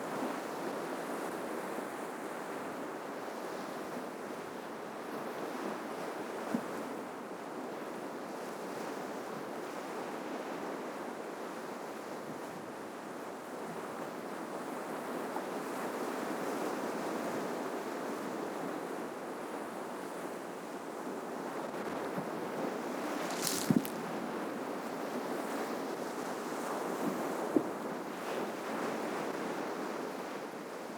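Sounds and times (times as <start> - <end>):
ocean surf washing ashore: 22.3 - 30.7.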